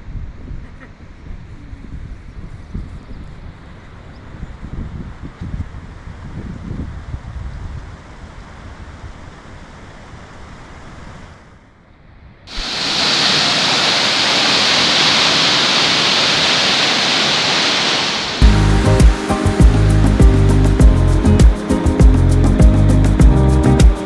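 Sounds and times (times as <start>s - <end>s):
waterfall rushing: 12.5s - 22.0s
faint rushing water: 12.5s - 22.5s
wind rumble: 12.5s - 22.6s.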